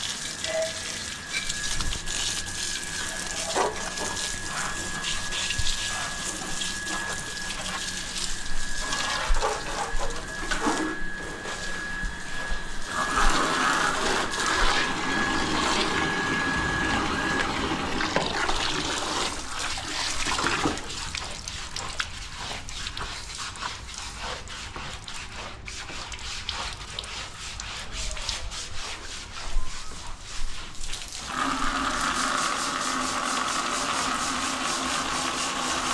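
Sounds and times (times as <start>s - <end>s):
steady high whine: 0.0s - 19.7s
scrubbing noises: 0.0s - 35.9s.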